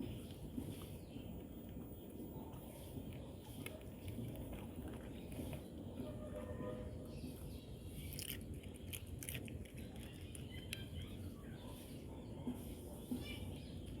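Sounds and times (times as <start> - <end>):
dog crunching food: 8.1 - 10.8.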